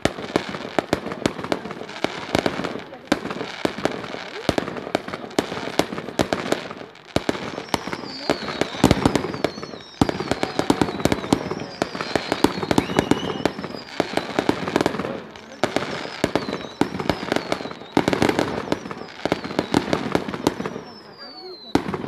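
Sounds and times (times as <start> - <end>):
fireworks bangs and crackling: 0.0 - 22.0
fireworks falling whistles: 0.0 - 22.0.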